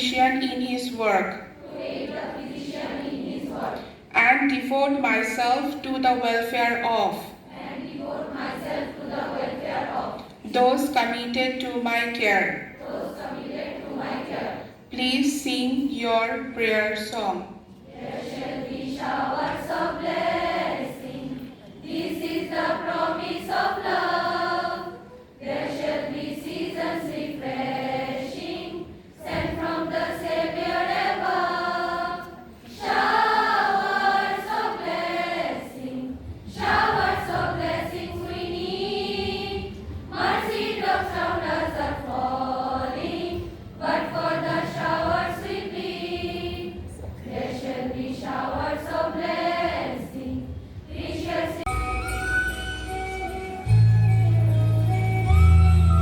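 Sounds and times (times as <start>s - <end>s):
choir singing a prayer song: 1.4s - 4.0s, 7.4s - 10.4s, 12.6s - 14.9s, 17.9s - 51.7s.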